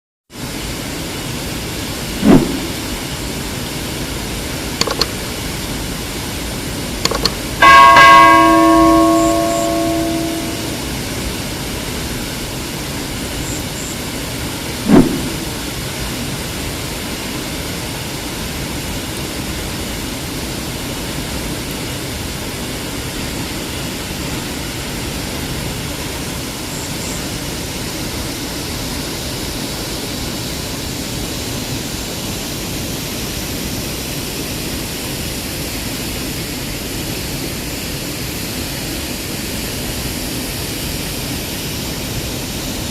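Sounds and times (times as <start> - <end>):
sharp knock: 2.2 - 2.9, 7.1 - 10.8, 14.9 - 15.6
bell-like chime: 7.6 - 11.0.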